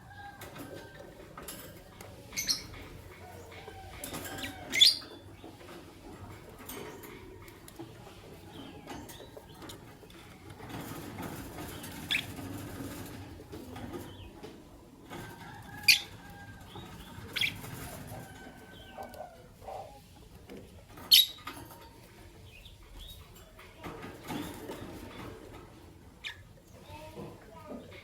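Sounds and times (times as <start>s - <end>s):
birds twittering softly: 0.0s - 28.0s
lovebirds chirping: 1.9s - 5.6s, 16.7s - 20.0s, 21.1s - 21.4s.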